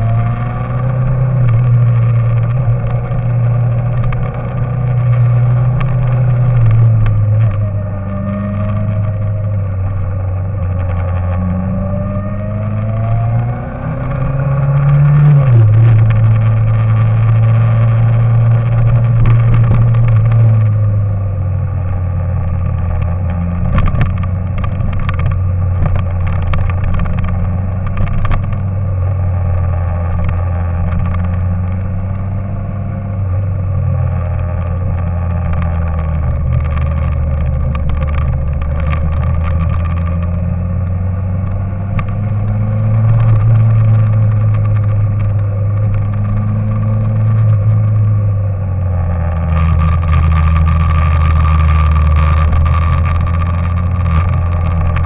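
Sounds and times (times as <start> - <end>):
vehicle engine running: 0.0 - 55.0
clicks and rattles: 22.3 - 28.8, 34.2 - 55.0.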